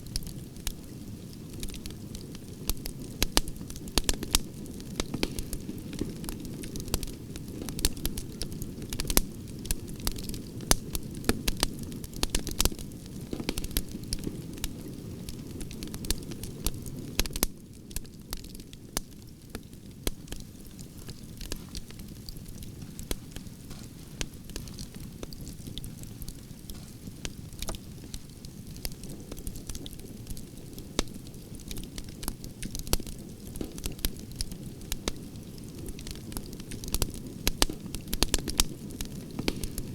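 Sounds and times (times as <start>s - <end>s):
campfire crackles and pops: 0.0s - 39.9s
low rush of flames: 0.0s - 39.9s.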